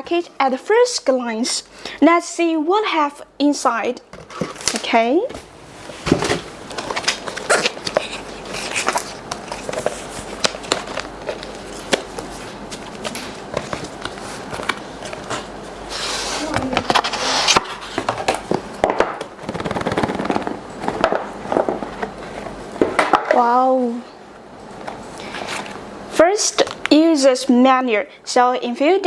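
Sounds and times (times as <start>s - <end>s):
packaging rustling and scraping: 4.2s - 5.0s, 5.8s - 18.7s, 19.3s - 22.6s
packaging clicks and crackles: 6.7s - 15.4s.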